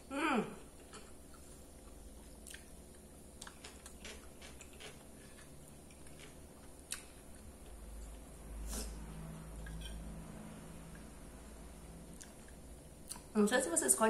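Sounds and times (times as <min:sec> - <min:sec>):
close-up chewing: 0:00.8 - 0:08.3
wet mouth clicks: 0:12.2 - 0:13.3.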